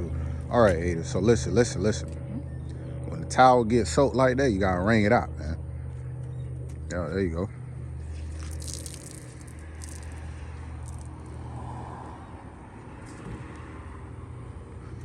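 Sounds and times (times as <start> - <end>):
water trickling from wrung towel: 8.0 - 11.2.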